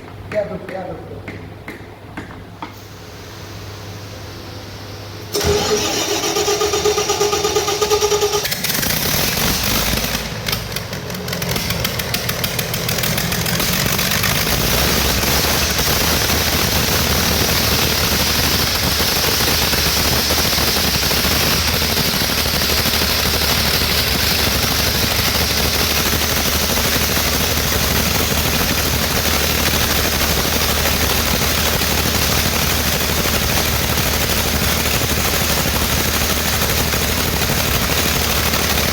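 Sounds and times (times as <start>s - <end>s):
diesel generator engine running: 2.9s - 38.9s
starter motor whine: 5.3s - 10.6s.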